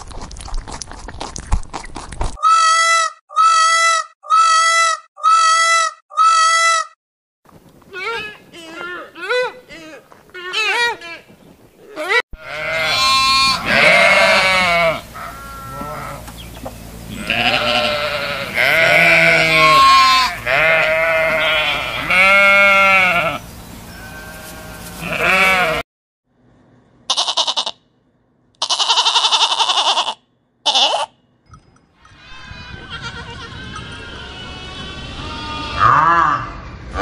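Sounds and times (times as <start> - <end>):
goats bleating: 11.9 - 16.3, 17.1 - 25.8, 27.1 - 27.7, 28.6 - 31.1, 32.2 - 36.2
sheep and lambs bleating: 11.9 - 16.3, 17.0 - 25.8, 27.1 - 27.8, 28.6 - 31.1, 32.2 - 36.5.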